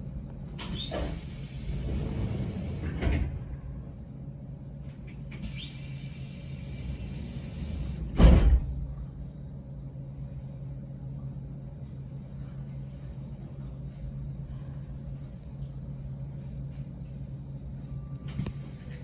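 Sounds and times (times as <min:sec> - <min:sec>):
steady low hum: 0:00.0 - 0:19.0
door shutting with heavy thump: 0:08.0 - 0:08.8.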